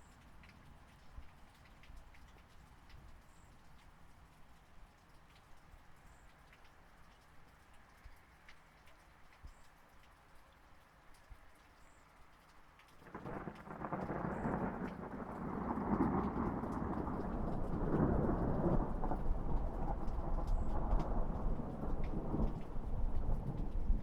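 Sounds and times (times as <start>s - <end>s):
raindrops pattering: 0.0s - 24.0s
thunder rumbling: 13.0s - 24.0s.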